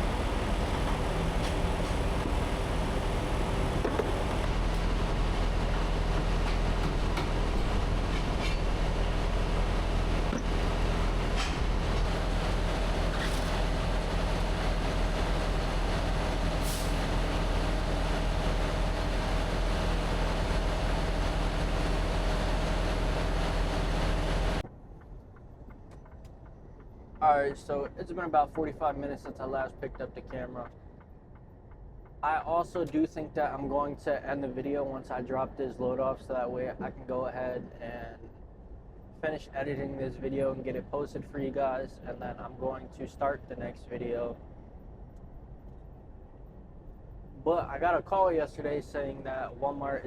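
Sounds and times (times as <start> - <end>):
road noise: 0.0 - 33.9
diesel truck engine drone: 0.0 - 50.0.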